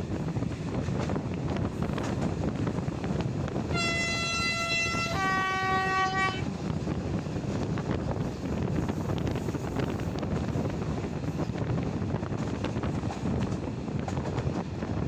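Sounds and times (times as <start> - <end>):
train wheels rumbling: 0.0 - 15.0
wind: 0.0 - 15.0
locomotive horn two notes: 3.7 - 6.5.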